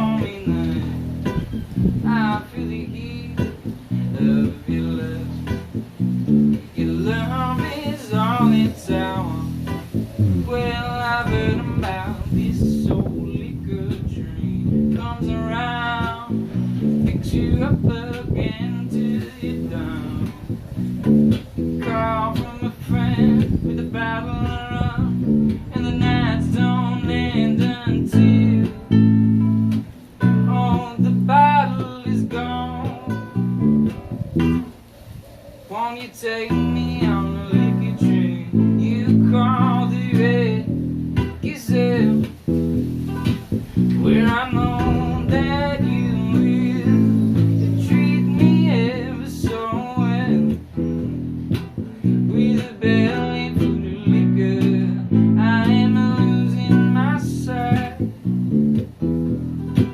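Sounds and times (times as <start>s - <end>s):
acoustic guitar strumming: 0.0s - 34.9s, 35.7s - 59.9s
wavering melody line: 8.2s - 12.2s.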